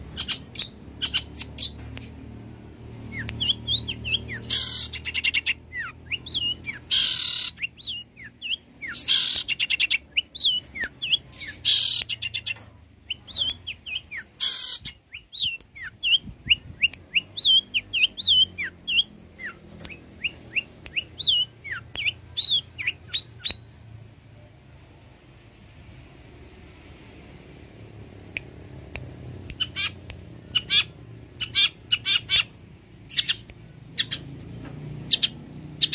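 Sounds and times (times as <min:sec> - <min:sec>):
harsh rasping bird calls: 0:03.1 - 0:16.2, 0:29.6 - 0:34.4
shrike whistled song: 0:13.1 - 0:23.7.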